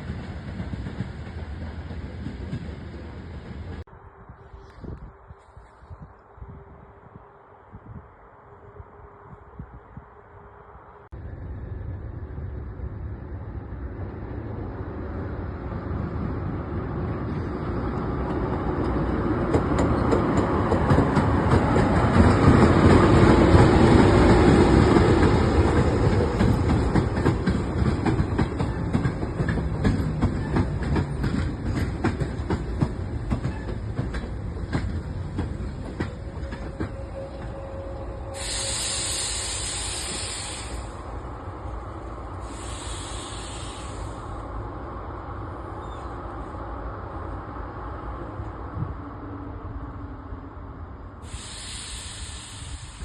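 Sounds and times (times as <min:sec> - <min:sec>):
train passing: 0:00.0 - 0:53.0
steady hiss: 0:38.4 - 0:41.3, 0:42.3 - 0:44.6, 0:51.2 - 0:53.0.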